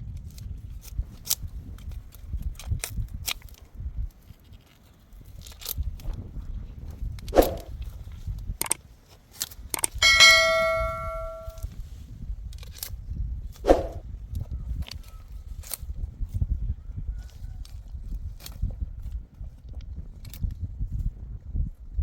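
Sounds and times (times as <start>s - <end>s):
metallic clang ringing: 10.0s - 11.6s.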